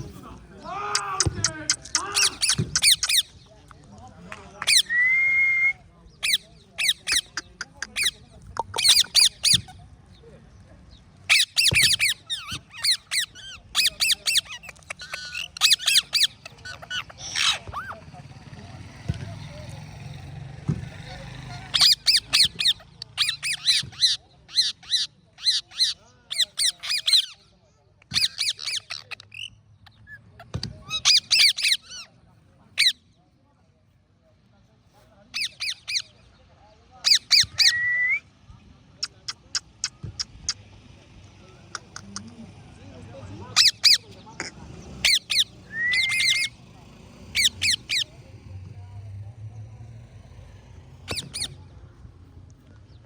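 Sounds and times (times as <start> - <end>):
parrot squawking: 0.9 - 3.4, 6.2 - 9.7, 11.3 - 18.0, 21.7 - 27.4, 30.9 - 32.1, 43.5 - 46.6, 47.3 - 48.2, 51.1 - 51.6.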